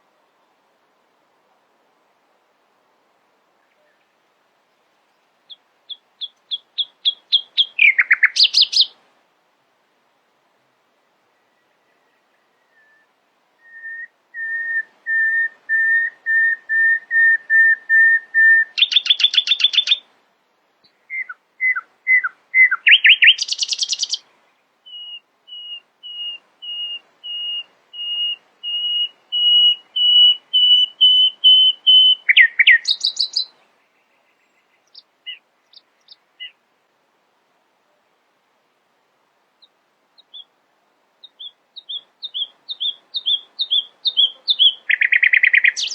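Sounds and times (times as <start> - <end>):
nightingale singing: 5.5 - 9.0, 11.3 - 20.1, 20.8 - 36.6, 39.6 - 40.6, 41.2 - 45.9.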